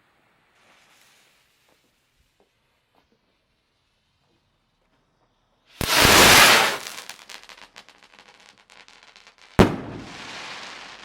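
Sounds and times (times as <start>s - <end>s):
firework crackles: 0.3s - 2.9s, 5.8s - 11.0s
firework rocket launching whoosh: 5.8s - 7.5s
loud firework report: 5.8s - 7.9s, 9.6s - 11.0s
crackling fizz: 5.8s - 8.6s.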